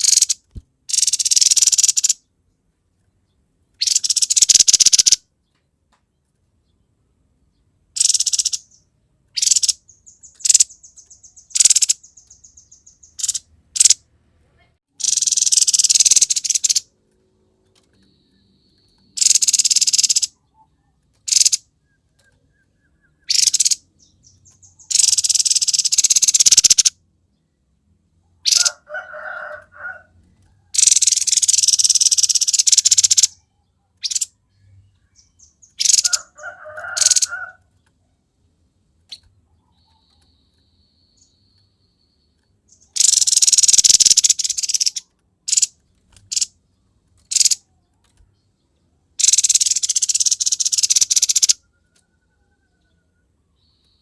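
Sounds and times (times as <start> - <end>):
bird sharp chips and trill: 0.0 - 2.3, 3.8 - 5.3, 7.9 - 14.0, 14.9 - 17.0, 17.7 - 27.0, 28.4 - 30.0, 30.6 - 37.6, 39.0 - 52.1.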